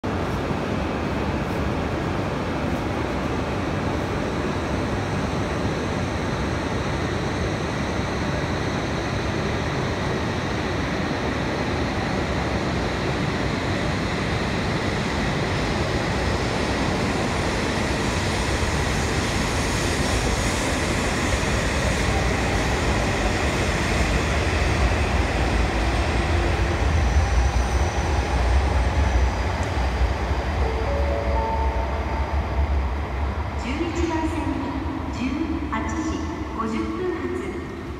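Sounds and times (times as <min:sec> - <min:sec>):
train running noise: 0:00.0 - 0:37.9
deep train rumble: 0:14.2 - 0:36.6.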